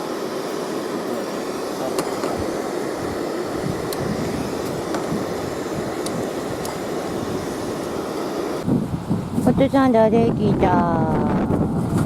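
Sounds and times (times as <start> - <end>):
strong wind on microphone: 2.3 - 12.0.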